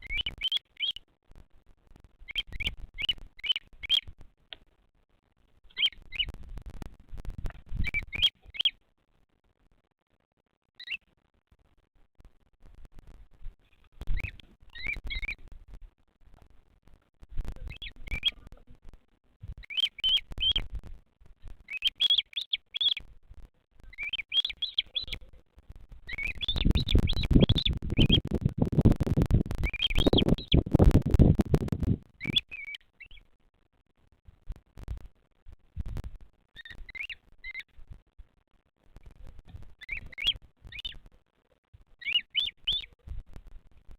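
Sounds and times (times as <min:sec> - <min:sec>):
bird chick chirping: 0:00.0 - 0:01.0, 0:02.2 - 0:04.1, 0:05.7 - 0:06.4, 0:07.4 - 0:08.8, 0:10.8 - 0:11.1, 0:14.0 - 0:15.5, 0:17.6 - 0:18.6, 0:19.5 - 0:20.8, 0:21.5 - 0:23.1, 0:23.8 - 0:25.4, 0:26.0 - 0:33.3, 0:36.6 - 0:37.8, 0:39.5 - 0:41.1, 0:42.0 - 0:43.0.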